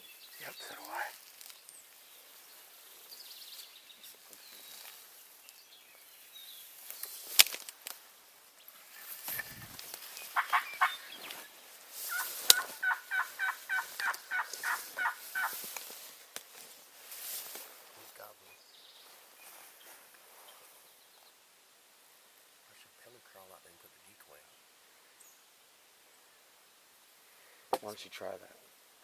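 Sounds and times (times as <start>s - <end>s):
turkey rattle call: 10.3s - 11.4s, 12.1s - 15.6s
turkey yelps: 10.4s - 11.3s, 12.1s - 15.6s.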